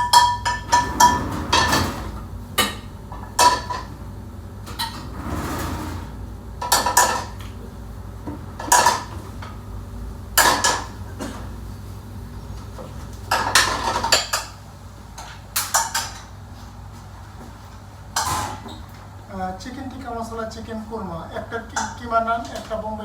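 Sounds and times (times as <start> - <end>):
metal pots and pans clattering: 0.0 - 4.0, 4.6 - 7.6, 8.3 - 9.6, 10.4 - 11.6, 13.3 - 14.6, 15.2 - 16.4, 18.2 - 18.9.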